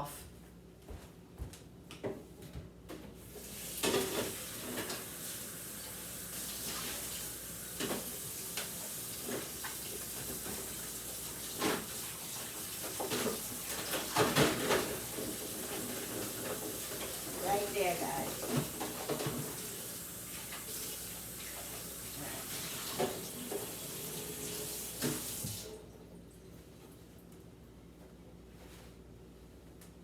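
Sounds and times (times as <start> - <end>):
items clattering against sink: 3.8 - 5.1, 7.8 - 19.8, 22.4 - 23.9
tap running into a sink: 22.5 - 25.8.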